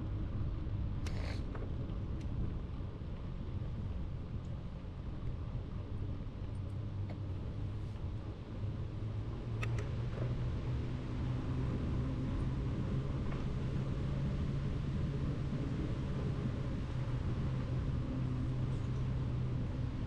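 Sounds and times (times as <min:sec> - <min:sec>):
wind rumble on microphone: 0:00.0 - 0:20.0
light clicks: 0:09.6 - 0:09.9.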